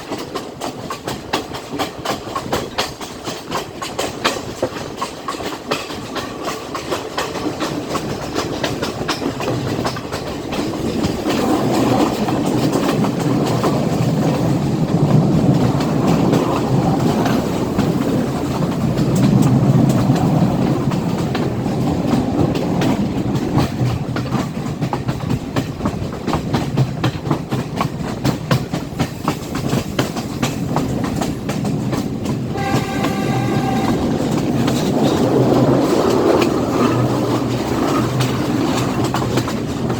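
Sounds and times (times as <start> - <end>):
train rumbling: 0.0 - 39.9
wheels clicking over rail joints: 0.0 - 39.9
train horn: 32.5 - 34.6.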